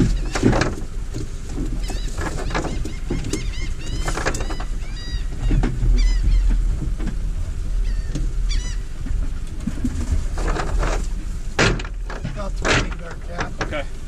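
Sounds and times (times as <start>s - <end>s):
low rumble: 0.0s - 14.0s
bird calling in high cries: 1.8s - 6.6s, 7.8s - 9.0s.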